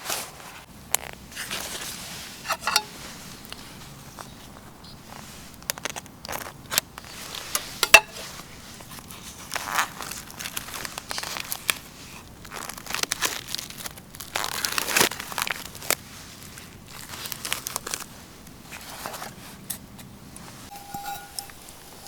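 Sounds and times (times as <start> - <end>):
crinkling and rustling: 0.0 - 22.0.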